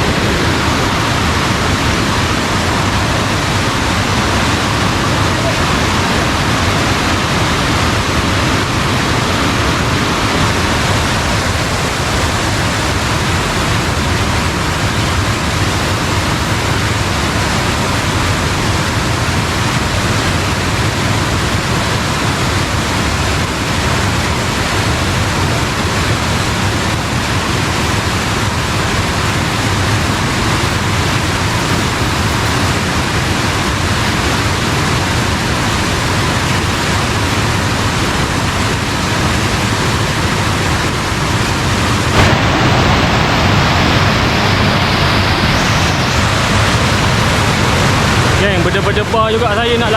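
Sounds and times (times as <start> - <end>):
stream water rushing: 0.0 - 49.9.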